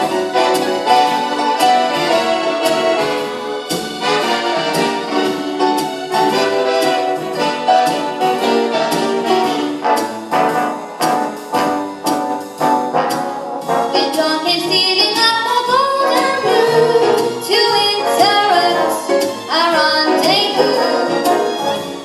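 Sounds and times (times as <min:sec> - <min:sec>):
dance band brass section: 0:00.0 - 0:14.1.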